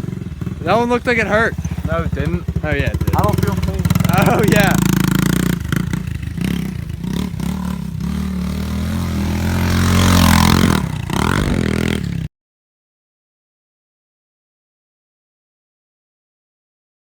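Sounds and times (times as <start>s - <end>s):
motorbike engine revving: 0.0s - 12.3s.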